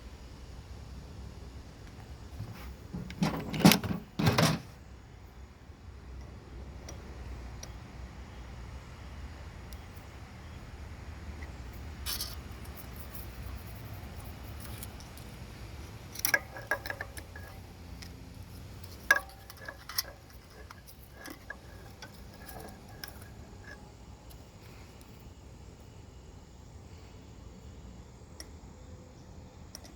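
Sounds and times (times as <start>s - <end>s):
metal tools clinking on engine: 2.5s - 4.7s, 15.8s - 23.9s.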